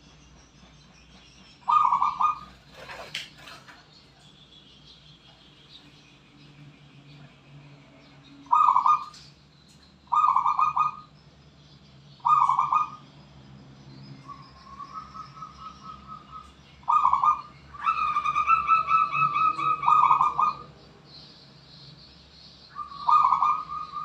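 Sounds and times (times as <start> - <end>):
dove cooing: 1.7 - 3.8, 8.5 - 9.3, 10.1 - 11.1, 12.2 - 13.0, 14.3 - 20.8, 22.7 - 24.0.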